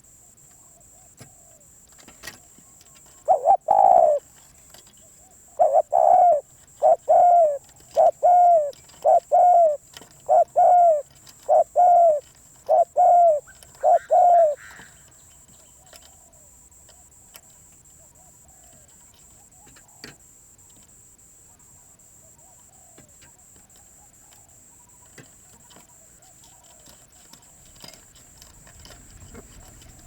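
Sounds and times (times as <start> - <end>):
steady high hiss: 0.0 - 25.2
dove cooing: 2.3 - 4.4, 5.0 - 15.0, 18.0 - 20.2, 21.6 - 30.0.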